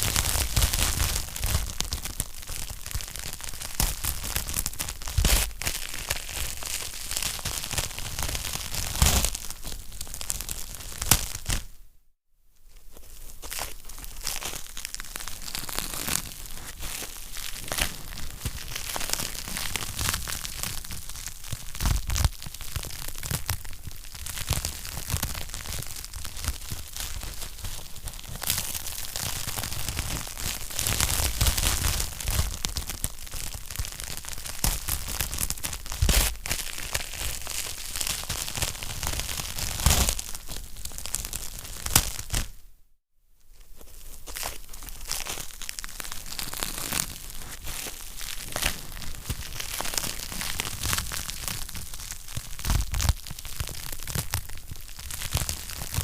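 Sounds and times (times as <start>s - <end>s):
wood fire crackling: 13.5s - 42.4s.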